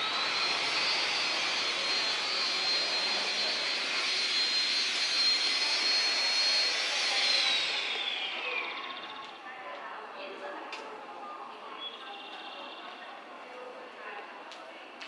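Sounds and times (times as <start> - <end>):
high-speed train rushing: 0.0 - 9.5
train high whine: 0.0 - 10.2.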